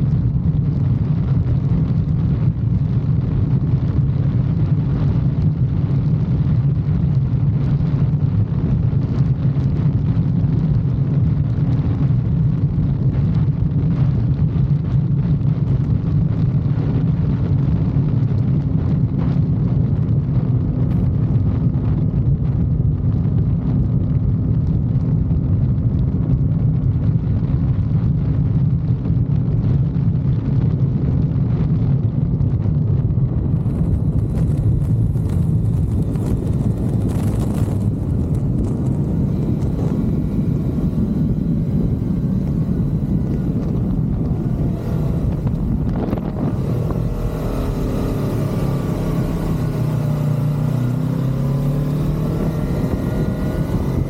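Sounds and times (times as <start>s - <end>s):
motorcycle engine cruising: 30.3s - 54.0s.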